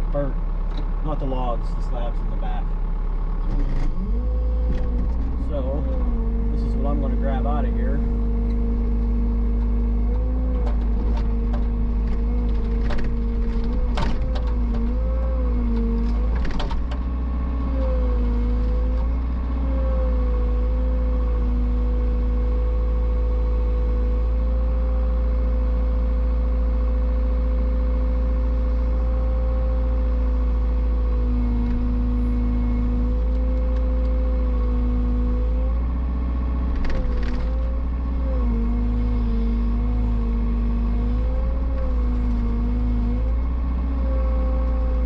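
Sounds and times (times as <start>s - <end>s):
diesel engine running: 0.0s - 45.0s
knocks and clatters of wood: 10.4s - 15.0s, 15.7s - 17.1s, 36.7s - 37.8s.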